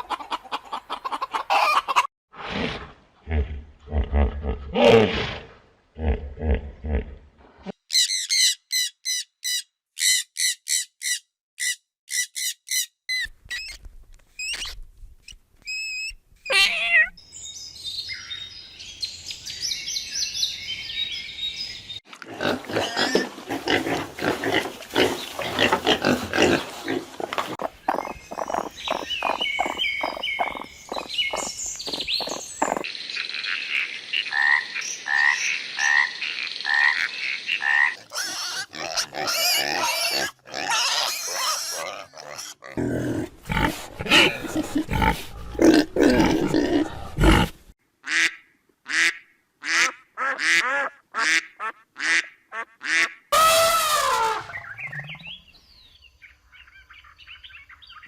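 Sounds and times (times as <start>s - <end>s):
low animal grunts: 2.5s - 7.3s, 42.7s - 47.6s
falling animal call: 15.7s - 17.2s, 53.3s - 55.4s
birds chattering: 27.4s - 38.0s
fast pulsing calls: 27.9s - 32.9s.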